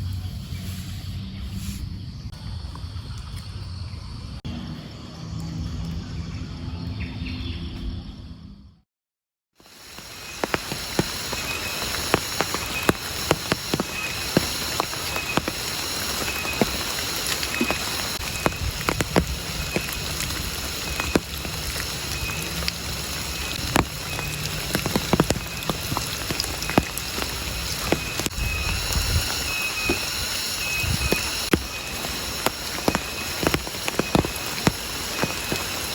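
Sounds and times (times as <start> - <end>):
raindrops tapping: 9.6 - 35.9
steady rain: 9.6 - 35.9.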